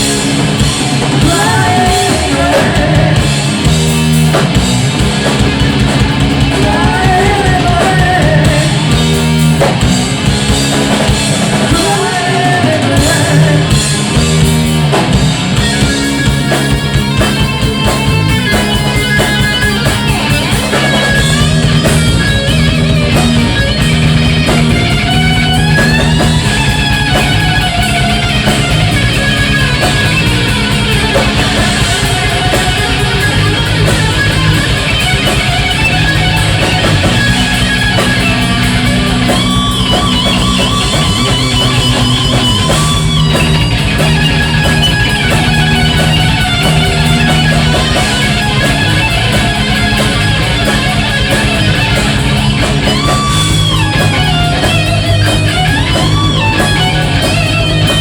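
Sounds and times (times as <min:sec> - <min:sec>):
bass guitar: 0:00.0 - 0:58.0
drums: 0:00.0 - 0:58.0
electric guitar lead lines: 0:00.0 - 0:58.0.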